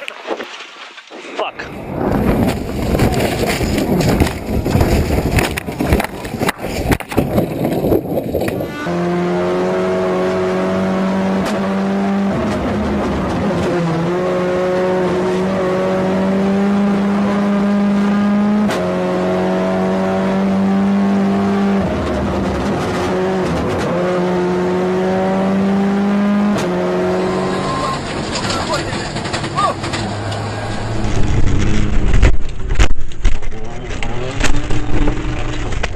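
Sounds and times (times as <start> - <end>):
racing car engine revving: 8.5 - 32.9, 33.5 - 35.9.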